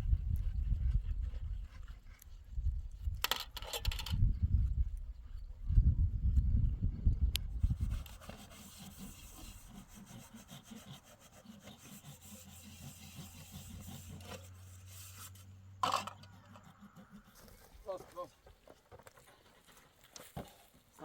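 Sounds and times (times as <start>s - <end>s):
faint scraping strokes: 7.5s - 18.4s.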